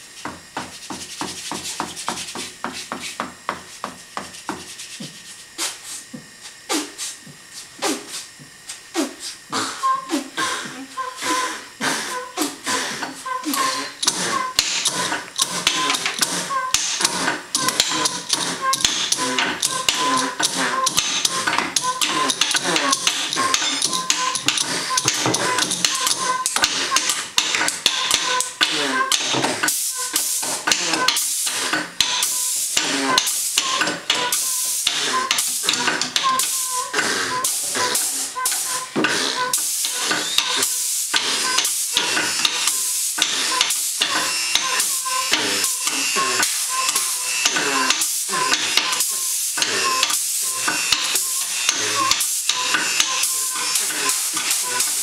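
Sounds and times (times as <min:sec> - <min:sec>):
beatbox-like percussion hits: 0:00.2 - 0:55.0.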